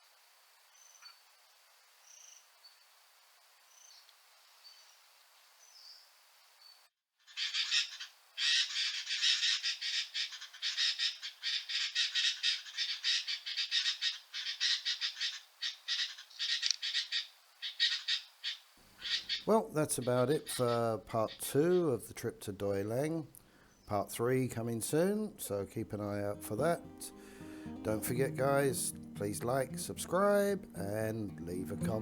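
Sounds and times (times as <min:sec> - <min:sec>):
faint bird chirps: 0:00.7 - 0:01.3, 0:02.0 - 0:02.9, 0:03.6 - 0:22.0
high insect tone: 0:07.3 - 0:19.5
birds chattering harshly: 0:07.3 - 0:22.0.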